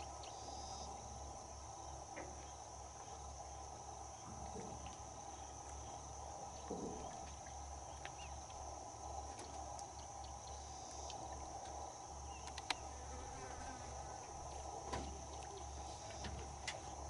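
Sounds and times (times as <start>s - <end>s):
insects droning: 0.0s - 17.0s
small clicks: 12.4s - 12.8s.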